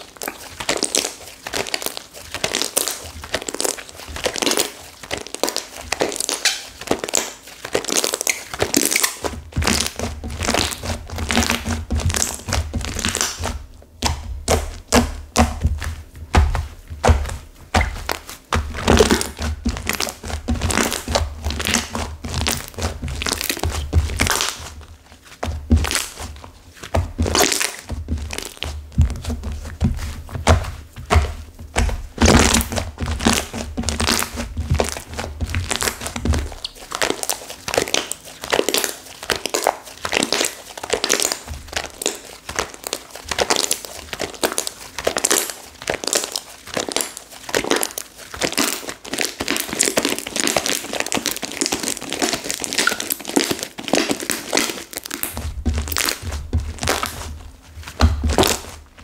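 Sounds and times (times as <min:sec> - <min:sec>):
hardened slime crackling: 0:00.0 - 0:59.0.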